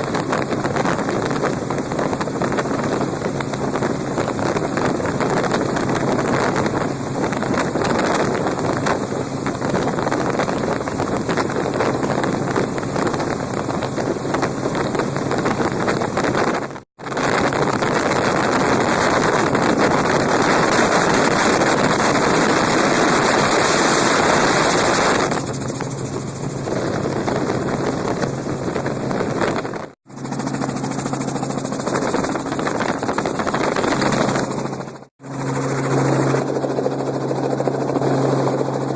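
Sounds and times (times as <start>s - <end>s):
helicopter engine and rotor drone: 0.0s - 38.9s
wind rushing: 0.0s - 38.9s.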